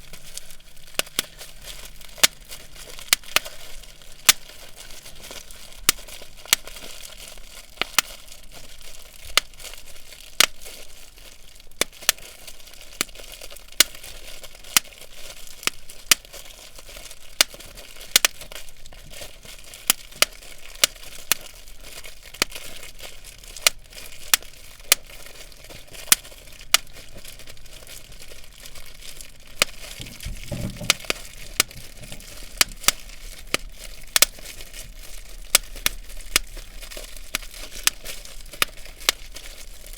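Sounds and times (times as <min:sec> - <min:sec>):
bubble wrap popping: 0:00.0 - 0:39.9
plastic sheet crinkling: 0:00.0 - 0:39.9
dull low thump: 0:30.0 - 0:32.9.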